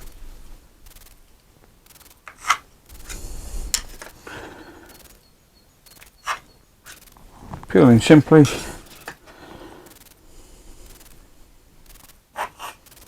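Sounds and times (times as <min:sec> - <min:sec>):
pencil scratching on wood: 0:12.4 - 0:12.9.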